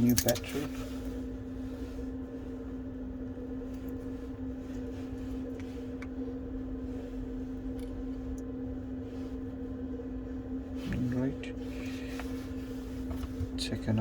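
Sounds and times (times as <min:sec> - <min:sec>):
faint clicks of small parts: 0:00.0 - 0:00.6
steady machine hum: 0:00.0 - 0:14.0.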